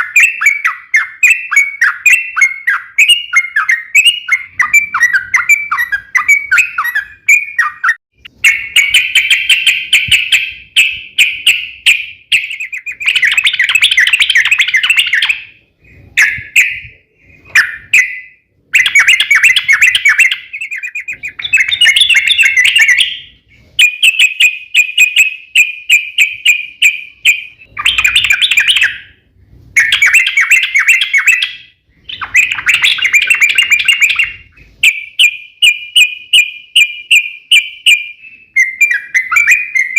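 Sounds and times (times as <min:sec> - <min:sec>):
bird singing bubbling rolls: 0:29.8 - 0:34.5.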